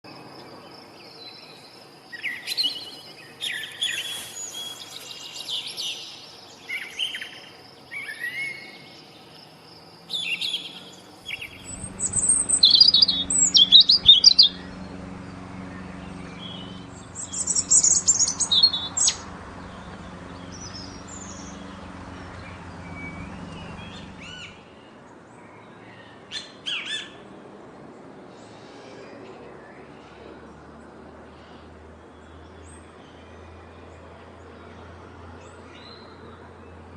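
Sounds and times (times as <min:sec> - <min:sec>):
birds chirping and calling: 0:10.1 - 0:24.6
steady low hum: 0:10.8 - 0:24.6.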